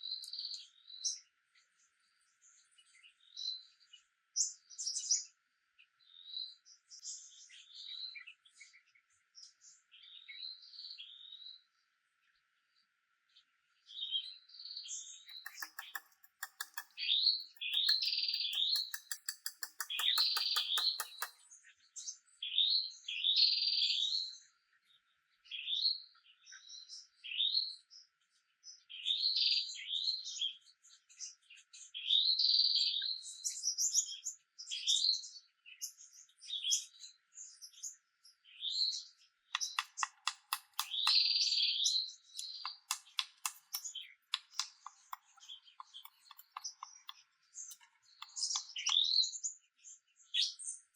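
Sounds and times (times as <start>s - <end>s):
songbird singing chirpy phrases: 0.0s - 50.9s
rapid clicking: 15.3s - 21.3s, 39.6s - 41.2s.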